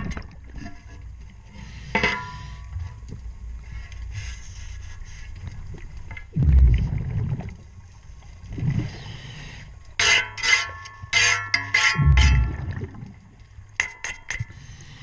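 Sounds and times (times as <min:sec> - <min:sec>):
underwater exhaled bubbles: 0:05.7 - 0:09.4, 0:12.0 - 0:13.4.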